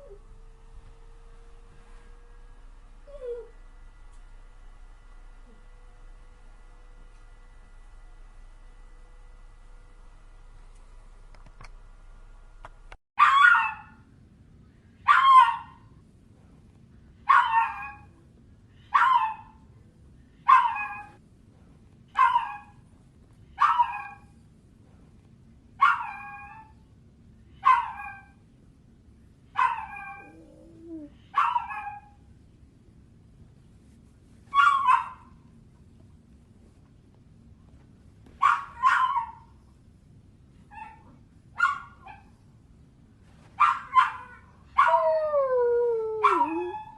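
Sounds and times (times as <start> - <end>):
faint steady hum: 0.0 - 46.9
dog whining yelps: 13.2 - 13.9, 15.1 - 15.8, 17.3 - 18.1, 20.5 - 21.2, 22.2 - 22.7, 23.6 - 24.2, 25.8 - 26.7, 27.6 - 28.4, 29.6 - 32.2, 34.5 - 35.2, 38.4 - 39.4, 40.7 - 42.3, 43.6 - 45.2, 46.2 - 46.9.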